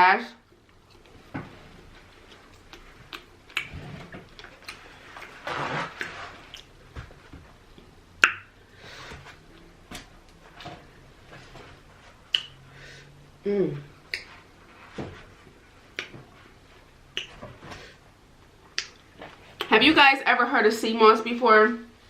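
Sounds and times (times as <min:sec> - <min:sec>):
mouth clicks smacks and chewing: 0:02.2 - 0:04.9, 0:12.3 - 0:12.6, 0:17.1 - 0:17.4, 0:18.6 - 0:19.0.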